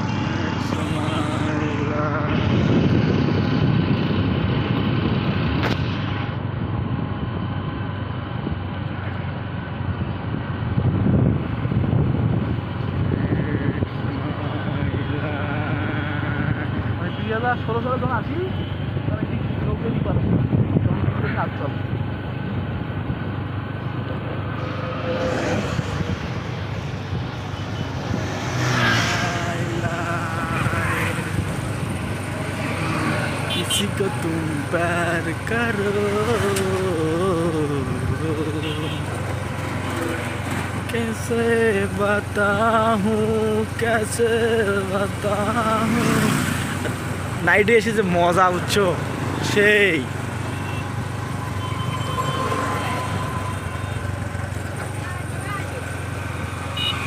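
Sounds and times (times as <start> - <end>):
road and wind noise: 0.0 - 57.0
motorcycle engine running: 53.2 - 57.0.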